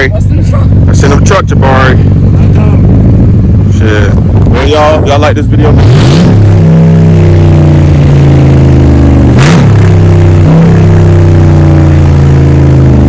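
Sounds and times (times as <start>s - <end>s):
truck engine with exhaust drone: 0.0s - 13.0s.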